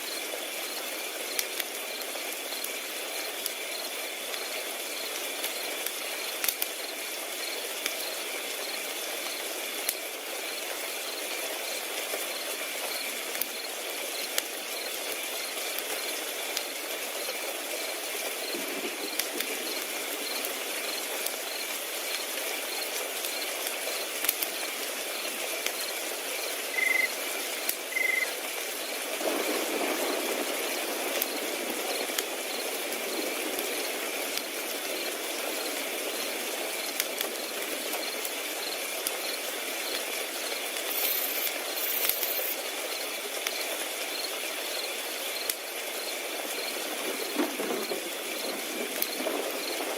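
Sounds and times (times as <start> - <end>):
crickets trilling: 0.0 - 49.9
wood fire crackling: 0.0 - 49.9
loud short chirps: 26.7 - 27.1.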